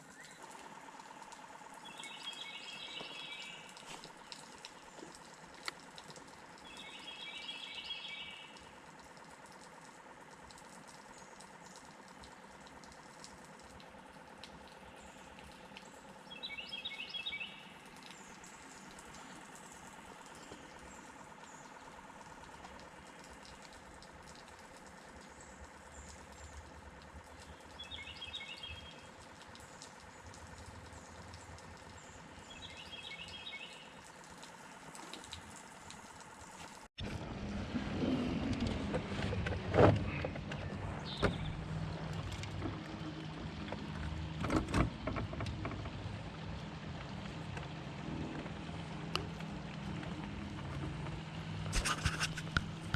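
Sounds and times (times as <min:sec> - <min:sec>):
songbird singing: 0:00.0 - 0:05.3, 0:06.5 - 0:08.8, 0:14.7 - 0:19.4, 0:25.2 - 0:34.0, 0:40.2 - 0:43.3
faint high chirps and ticks: 0:00.0 - 0:36.3.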